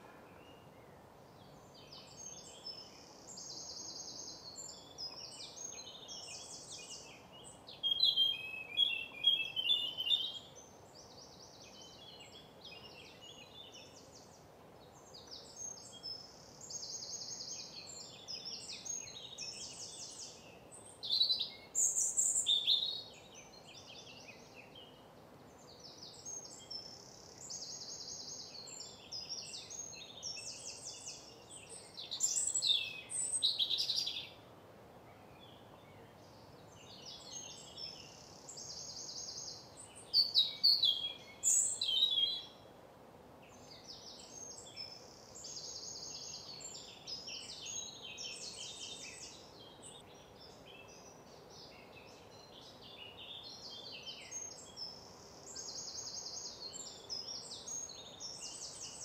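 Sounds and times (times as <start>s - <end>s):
songbirds trilling and chirping: 0.0s - 59.0s.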